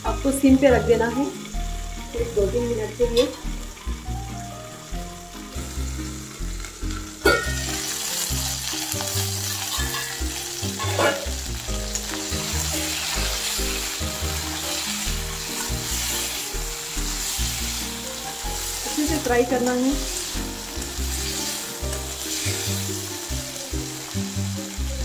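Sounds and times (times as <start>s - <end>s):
vegetables sizzling in oil: 0.0s - 25.0s
pan lid clank: 7.2s - 7.7s, 9.7s - 11.4s
spatula scraping pan: 9.5s - 11.4s.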